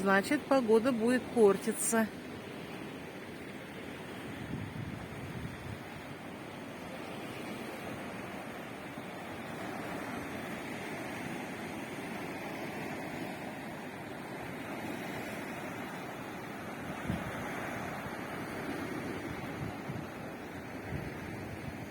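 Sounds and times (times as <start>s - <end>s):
sea waves breaking on shore: 0.0s - 21.9s
wind buffeting microphone: 4.2s - 6.2s, 16.9s - 21.9s.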